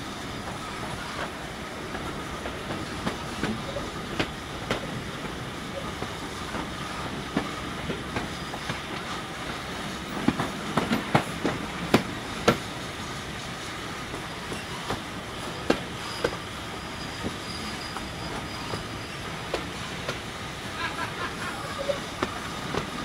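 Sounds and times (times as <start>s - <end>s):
train rumble: 0.0s - 23.0s
wind: 0.0s - 23.0s
faint high squeal: 14.2s - 19.5s.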